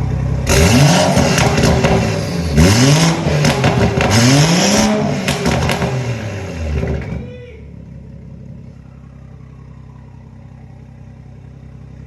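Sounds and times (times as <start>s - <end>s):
car engine revving: 0.0s - 7.3s
exhaust crackles: 0.0s - 12.0s.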